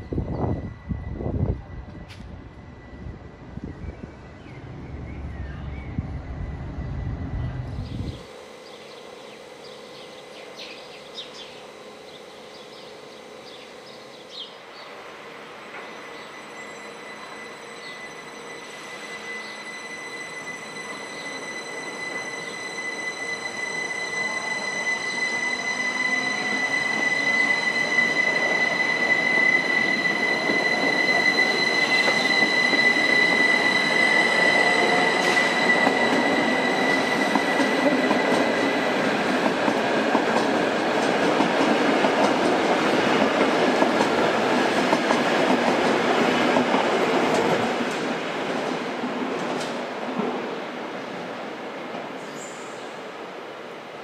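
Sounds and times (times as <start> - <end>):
train wheels rumbling over rails: 22.0 - 52.4.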